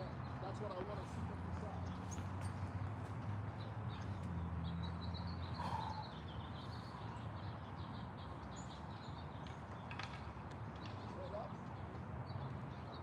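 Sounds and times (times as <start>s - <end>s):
small bird chirping: 3.5s - 9.4s.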